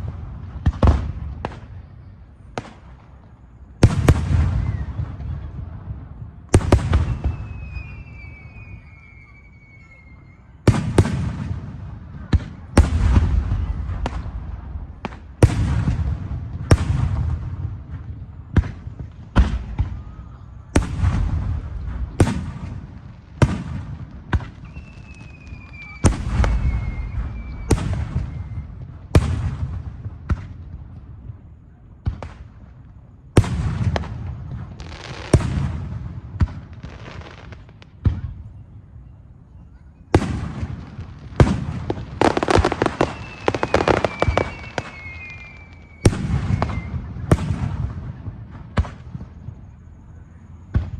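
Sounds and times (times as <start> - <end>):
fireworks bursting with bangs: 0.0 - 9.8, 10.6 - 38.6, 40.1 - 50.9
thin falling whistle: 7.1 - 10.4, 24.6 - 28.7, 42.3 - 47.0.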